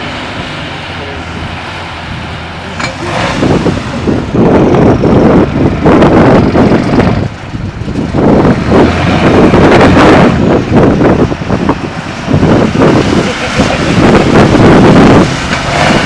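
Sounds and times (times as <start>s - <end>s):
truck diesel engine under load: 0.0s - 16.0s.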